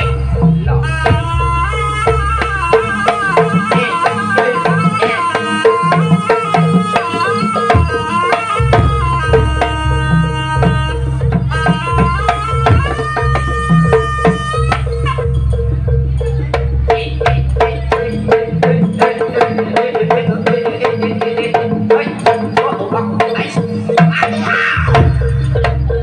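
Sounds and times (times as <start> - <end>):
drums fast beat: 0.0 - 26.0
ornamented melody line: 0.0 - 26.0
deep bass: 14.9 - 18.2.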